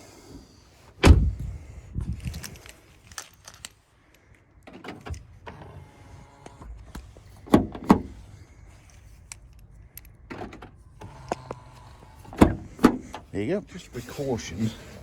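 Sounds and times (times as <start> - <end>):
car door slamming: 1.0 - 1.4, 12.3 - 13.0
door lock clicks and whirring: 4.6 - 13.3
sharp clunks: 12.3 - 13.2.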